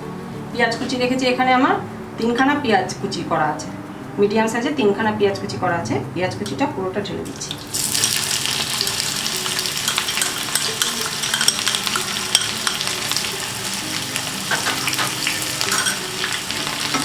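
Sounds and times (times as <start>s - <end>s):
onions sizzling in hot oil: 7.2s - 17.0s
small crackles while stirring: 7.5s - 17.0s.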